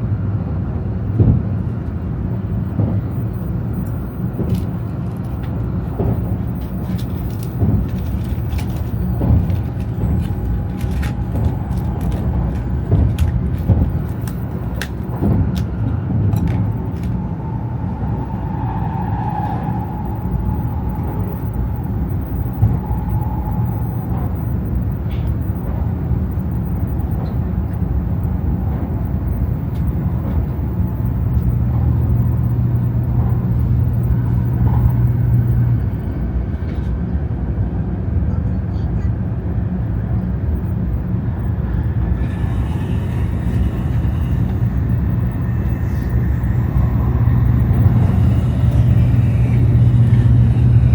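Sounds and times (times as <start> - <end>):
train running low rumble: 0.0 - 50.9
low hum: 0.6 - 36.7, 40.5 - 50.9
faint whine: 40.9 - 50.9.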